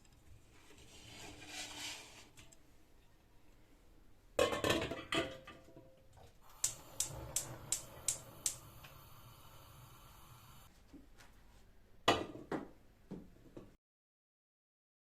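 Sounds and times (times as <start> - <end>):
steady hiss: 6.4 - 10.7
quick clicks: 6.5 - 10.7.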